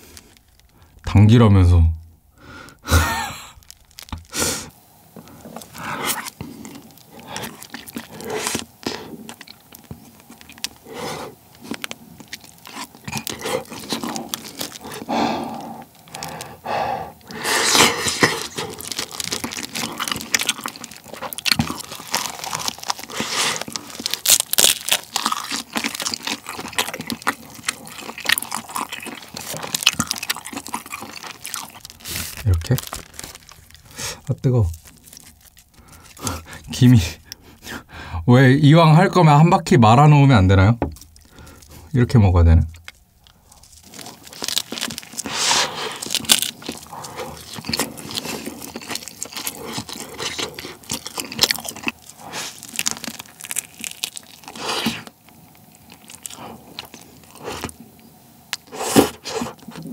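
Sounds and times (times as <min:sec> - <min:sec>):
crunchy wet chewing: 0:00.0 - 0:01.0, 0:02.6 - 0:38.0, 0:40.8 - 0:59.9.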